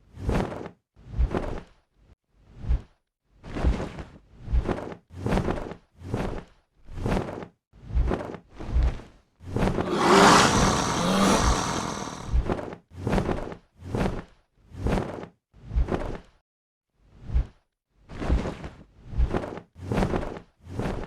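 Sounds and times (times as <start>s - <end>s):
rough roar: 9.8s - 12.4s.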